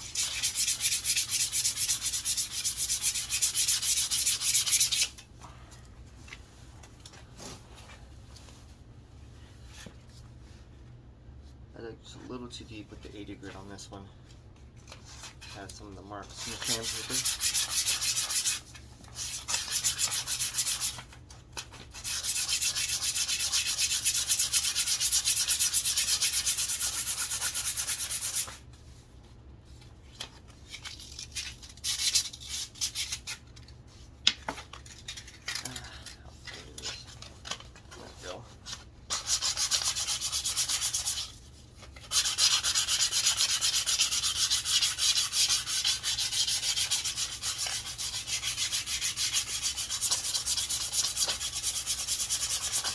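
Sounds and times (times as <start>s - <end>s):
sandpaper rubbing on wood: 0.0s - 5.1s, 16.3s - 21.0s, 21.9s - 28.6s, 39.1s - 41.4s, 42.0s - 52.9s.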